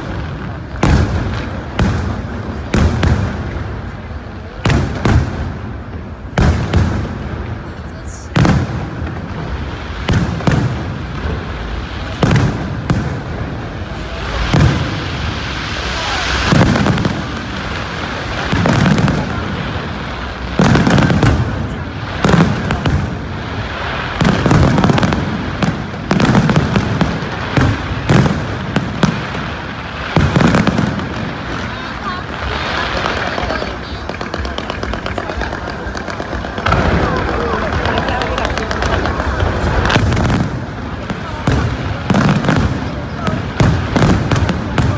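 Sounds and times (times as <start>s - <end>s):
fireworks bursting with loud bangs: 0.0s - 44.9s
fireworks hissing crackle: 0.0s - 44.9s.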